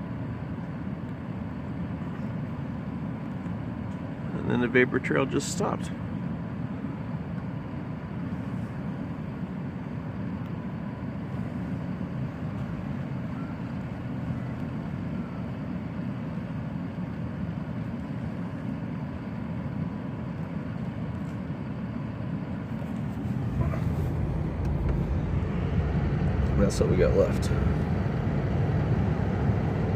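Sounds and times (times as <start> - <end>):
low outdoor rumble: 0.0 - 29.9
faint steady tone: 6.8 - 29.9.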